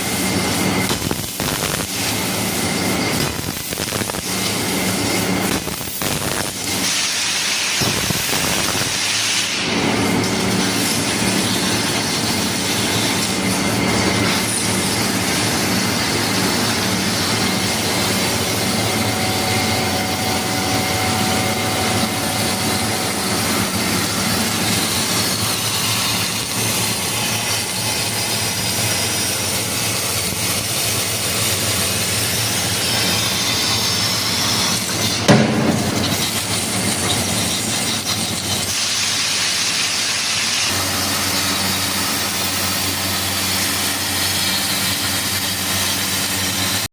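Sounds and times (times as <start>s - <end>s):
laser cutter gas jet hiss: 0.0s - 46.9s
low machine hum: 9.6s - 38.5s.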